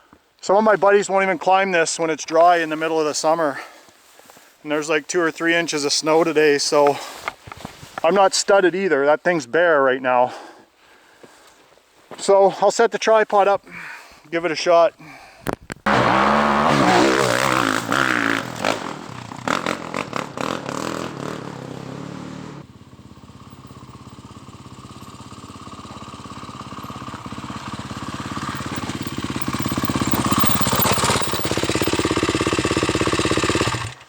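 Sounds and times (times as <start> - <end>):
motorcycle engine revving: 15.9 - 34.0.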